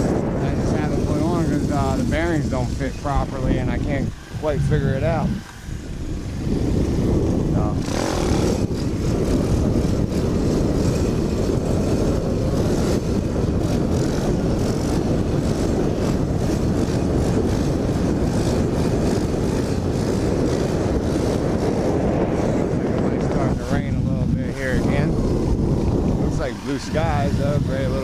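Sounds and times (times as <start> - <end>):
motorbike engine running: 0.0 - 28.0
wind buffeting microphone: 0.0 - 28.0.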